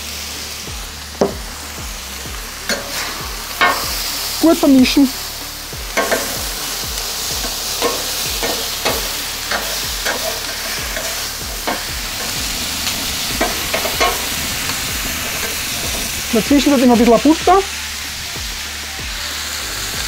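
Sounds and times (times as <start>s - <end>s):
meat and onions sizzling on griddle: 0.0s - 20.0s
metal spatula scraping steel plate: 7.8s - 12.4s.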